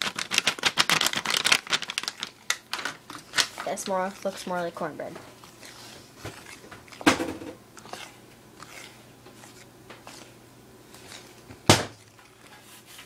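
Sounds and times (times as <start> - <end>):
fork stirring batter: 3.1 - 13.0.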